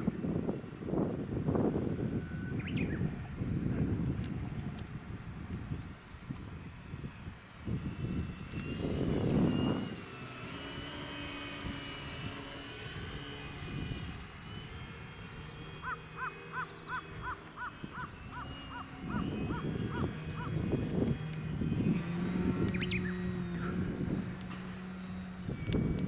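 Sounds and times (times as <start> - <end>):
model airplane motor whining: 0.0 - 26.0
wind gust on microphone: 0.0 - 26.0
bird calling short notes: 15.8 - 20.9.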